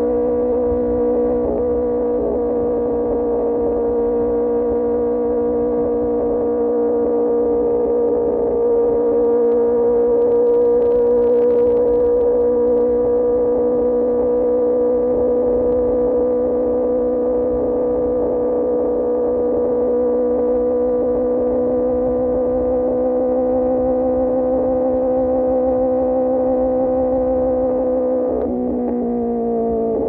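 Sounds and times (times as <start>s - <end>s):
motorcycle engine droning: 0.0s - 30.0s
wind rumble: 8.7s - 18.4s.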